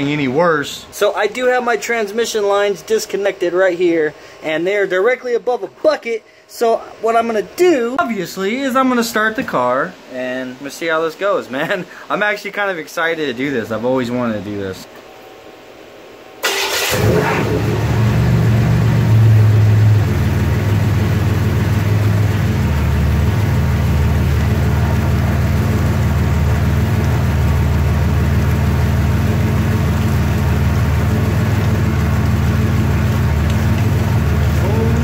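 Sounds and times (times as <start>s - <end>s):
car engine starting and idling: 16.4s - 35.0s.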